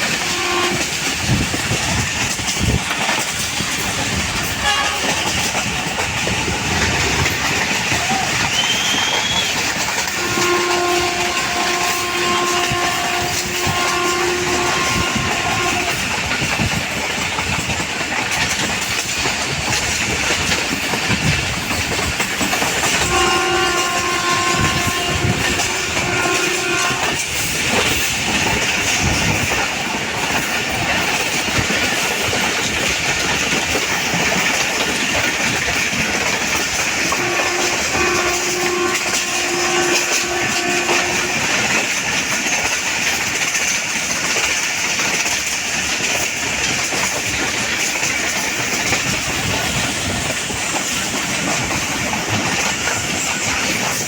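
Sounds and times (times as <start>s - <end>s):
train rumble and wheel clatter: 0.0s - 54.0s
train horn blast: 0.1s - 1.1s, 4.6s - 5.4s, 8.6s - 16.2s, 22.8s - 28.1s, 37.0s - 42.0s.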